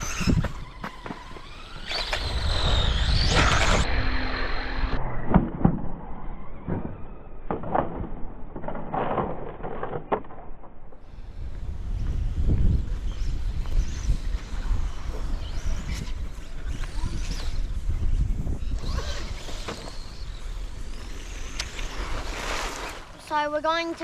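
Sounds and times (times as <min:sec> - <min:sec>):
electric motor whine: 0:00.0 - 0:05.0, 0:11.1 - 0:23.1.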